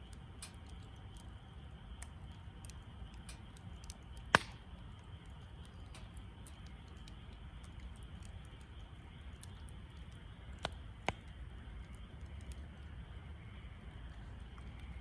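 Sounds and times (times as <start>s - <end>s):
low steady rumble: 0.0s - 15.0s
wood fire crackling: 0.0s - 15.0s
sharp pops: 4.2s - 4.8s.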